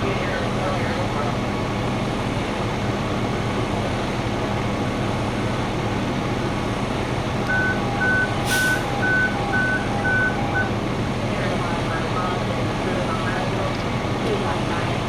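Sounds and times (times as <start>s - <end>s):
truck diesel engine running: 0.0s - 15.0s
reversing alarm beeping: 7.5s - 10.8s
air hiss: 8.4s - 9.0s.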